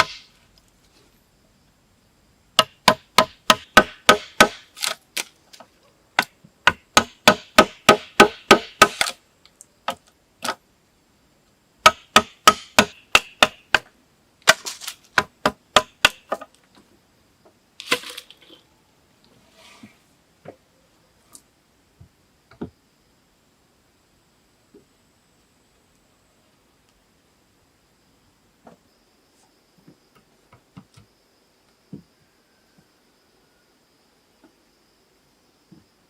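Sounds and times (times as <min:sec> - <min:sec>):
hand tool striking wood: 0:00.0 - 0:00.3, 0:02.6 - 0:05.0, 0:06.2 - 0:09.2, 0:11.8 - 0:13.9, 0:14.5 - 0:16.5
rustling crack: 0:17.8 - 0:18.6.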